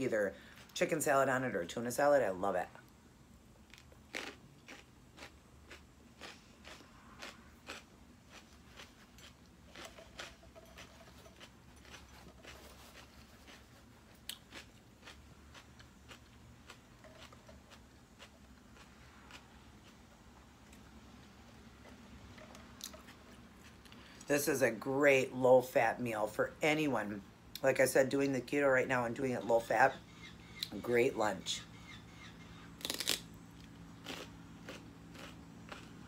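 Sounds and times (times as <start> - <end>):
crisp chewing crunches: 3.6 - 24.3, 32.8 - 36.0.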